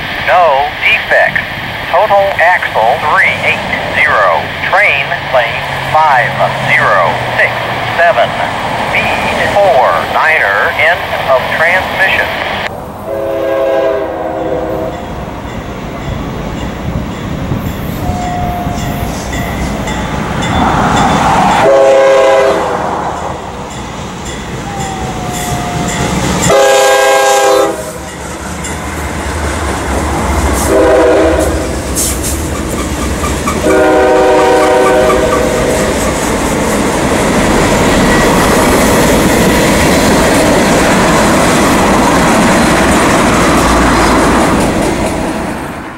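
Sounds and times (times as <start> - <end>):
heavy locomotive engine rumble: 0.0 - 45.9
locomotive horn blasts: 13.1 - 15.0, 21.6 - 22.7, 25.0 - 28.0, 30.6 - 31.8, 33.6 - 35.6
freight cars clickety-clack: 31.5 - 33.8, 34.6 - 45.8.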